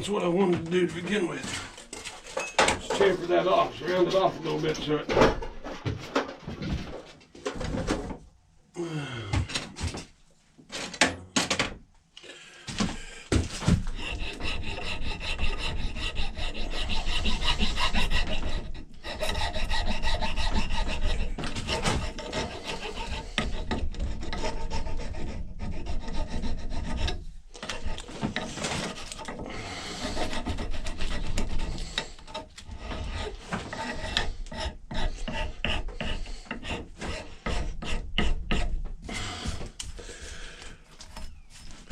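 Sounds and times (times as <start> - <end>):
file rasping on wood: 13.4 - 39.2.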